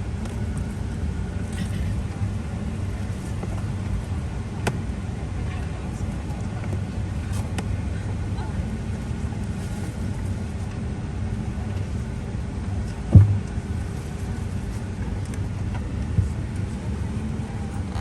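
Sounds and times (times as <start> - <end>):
low rumble inside airplane cabin: 0.0 - 18.0
heavy thump: 13.1 - 13.6.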